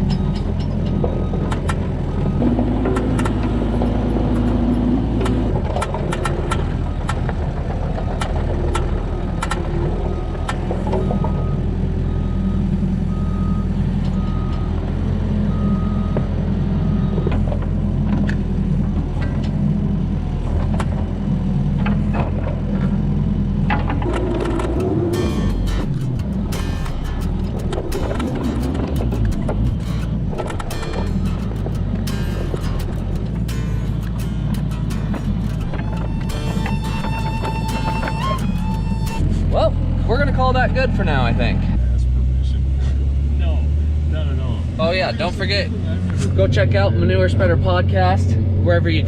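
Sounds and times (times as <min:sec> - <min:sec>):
excavator engine running: 0:00.0 - 0:49.0
repeated beep: 0:10.1 - 0:14.8.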